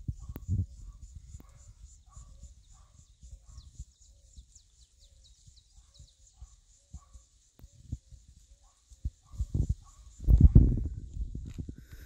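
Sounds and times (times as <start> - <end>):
low repeated bird call: 0.0 - 10.6
insect buzz: 0.0 - 12.0
high falling bird chirps: 0.1 - 10.5
low wind rumble: 9.0 - 12.0.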